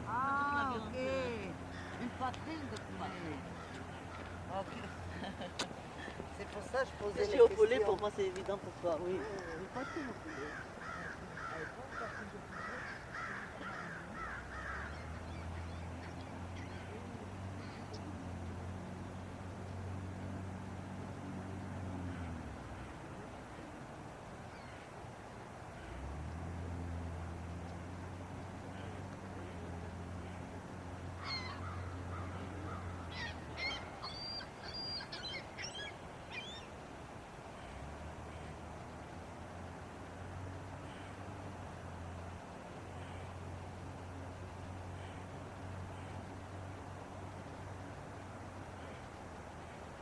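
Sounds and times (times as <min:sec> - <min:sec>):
low steady hum: 0:00.0 - 0:50.0
bird harsh calls: 0:01.6 - 0:02.2, 0:03.0 - 0:05.3, 0:09.2 - 0:17.0, 0:31.2 - 0:36.8
small bird chirping: 0:33.1 - 0:36.7.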